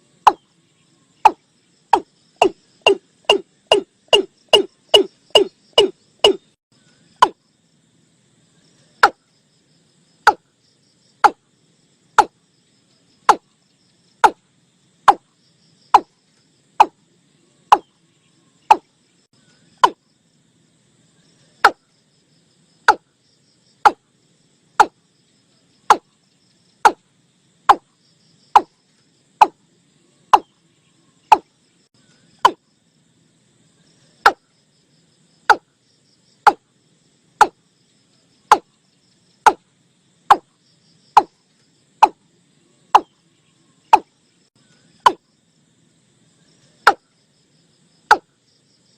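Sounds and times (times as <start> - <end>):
insect chirring: 0.0 - 48.9
bird call sharp notes: 1.2 - 6.6.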